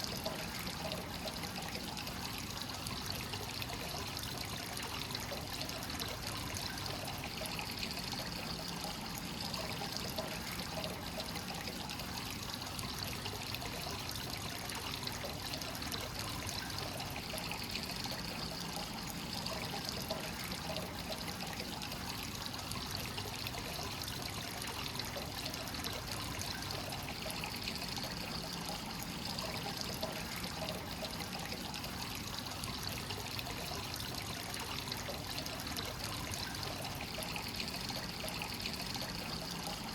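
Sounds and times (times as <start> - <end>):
water trickling into a bath: 0.0 - 39.9.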